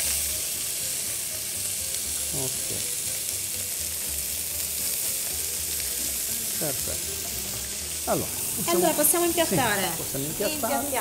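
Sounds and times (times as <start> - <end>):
octopus sizzling in a pan: 0.0 - 11.0.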